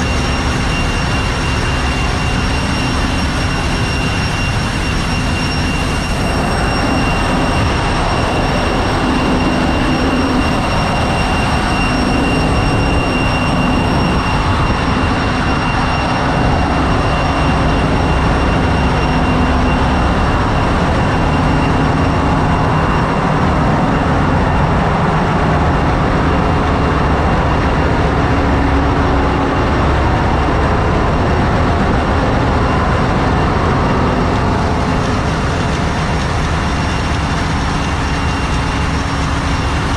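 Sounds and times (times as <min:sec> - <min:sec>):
engine room machinery din: 0:00.0 - 0:39.9
high-pitched machinery whines: 0:00.0 - 0:39.9.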